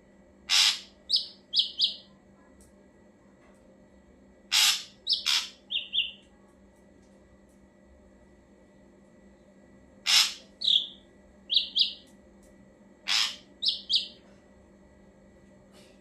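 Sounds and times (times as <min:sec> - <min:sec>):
bird singing harsh note and whistles: 0:10.1 - 0:12.0.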